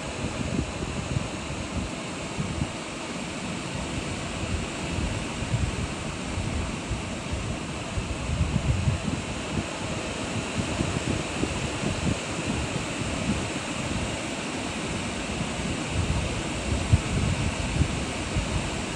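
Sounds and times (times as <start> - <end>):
wind buffeting microphone: 0.0 - 2.8, 3.4 - 14.2, 14.9 - 18.9
strong wind blowing: 0.0 - 18.9.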